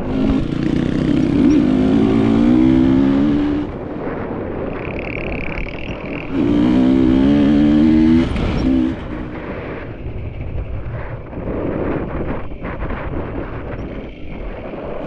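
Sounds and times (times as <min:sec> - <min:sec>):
dirt bike engine revving: 0:00.0 - 0:04.1, 0:04.7 - 0:09.6.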